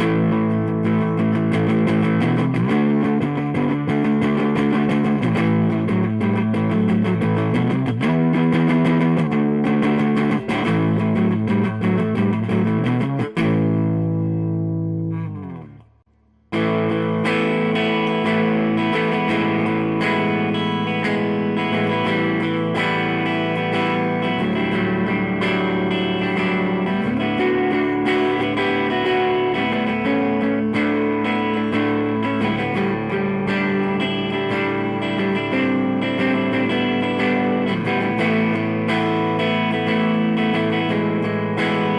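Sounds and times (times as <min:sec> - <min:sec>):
overdriven electric guitar: 0:00.0 - 0:41.9.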